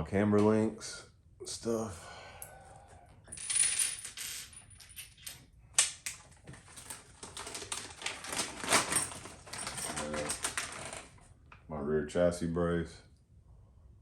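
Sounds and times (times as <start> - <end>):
plastic bag crinkling: 6.6 - 11.2.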